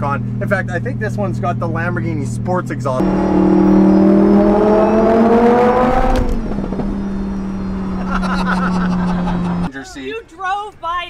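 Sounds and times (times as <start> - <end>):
exhaust crack: 0.6 - 9.7
car engine accelerating: 1.4 - 9.7.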